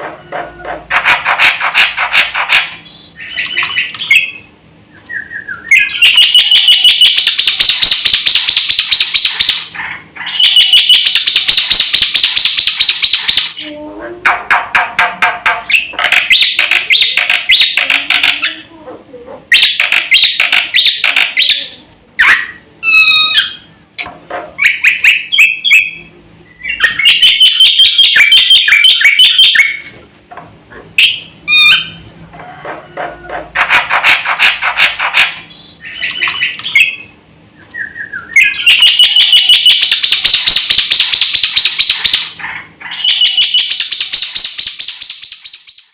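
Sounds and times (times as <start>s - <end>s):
starling singing: 0.0s - 18.7s, 19.5s - 23.8s, 24.6s - 29.8s, 31.0s - 32.1s, 32.8s - 45.9s
bird rattling trills: 5.7s - 13.6s, 14.7s - 18.5s, 19.5s - 21.6s, 38.4s - 42.4s.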